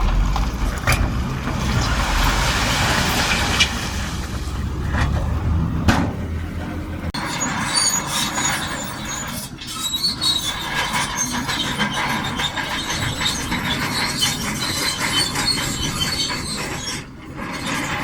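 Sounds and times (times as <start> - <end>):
bulldozer diesel engine: 0.0 - 18.0
steel tracks squealing and clanking: 6.4 - 18.0.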